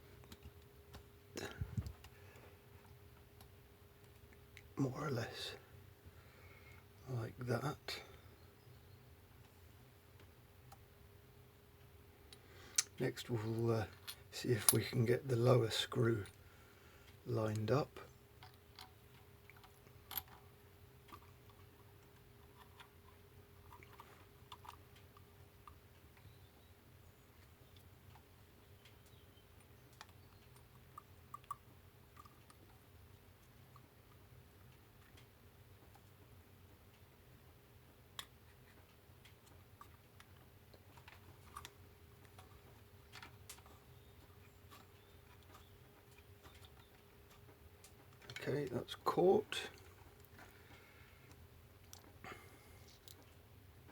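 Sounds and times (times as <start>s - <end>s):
faint steady hum: 0.0s - 53.9s
small metal parts clicking: 19.6s - 20.4s.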